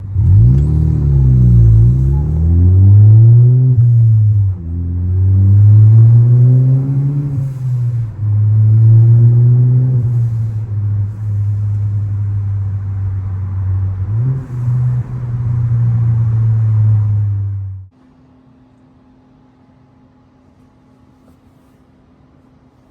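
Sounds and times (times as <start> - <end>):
car engine revving under load: 0.0 - 17.9.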